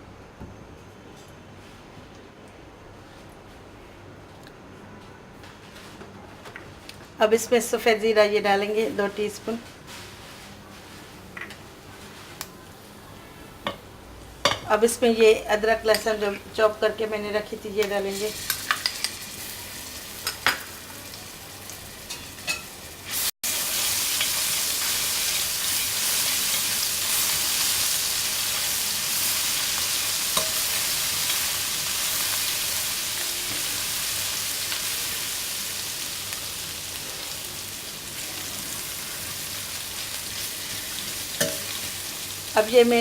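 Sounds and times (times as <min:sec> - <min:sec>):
food sizzling in hot oil: 0:17.8 - 0:43.0.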